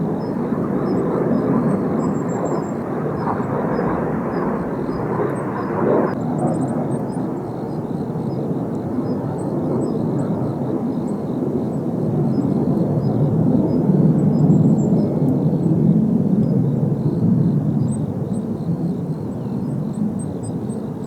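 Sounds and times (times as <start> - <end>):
jet aircraft rushing: 0.0 - 6.9.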